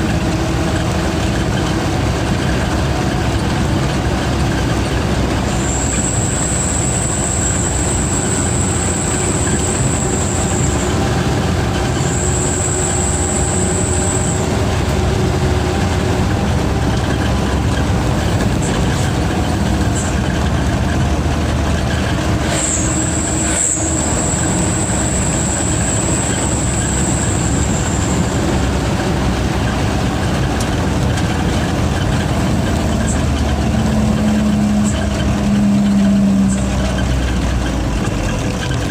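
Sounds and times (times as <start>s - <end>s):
diesel truck engine running: 0.0s - 38.9s
turbocharger whistle: 5.4s - 21.1s, 21.7s - 30.7s, 32.0s - 37.3s.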